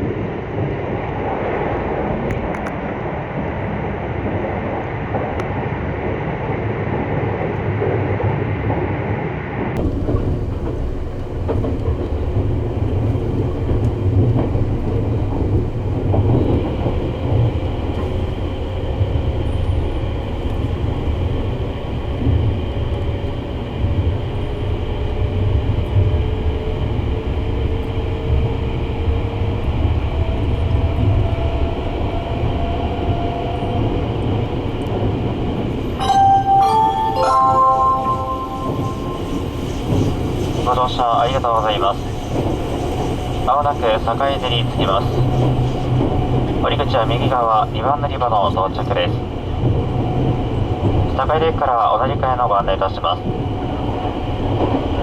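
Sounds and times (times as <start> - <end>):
train wheels rumbling on rail: 9.6 - 36.0, 38.3 - 55.0.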